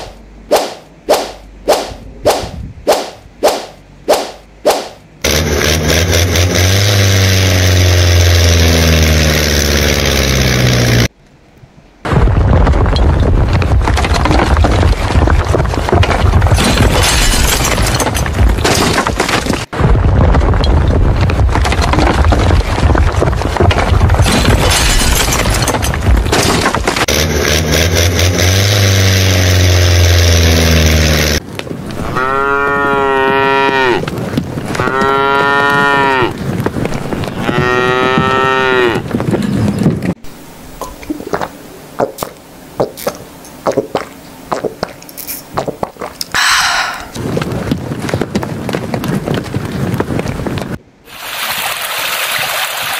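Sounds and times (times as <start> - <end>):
motor sweeping in pitch: 5.2 - 11.1
cow mooing: 32.0 - 34.0, 34.7 - 36.4, 37.2 - 39.1.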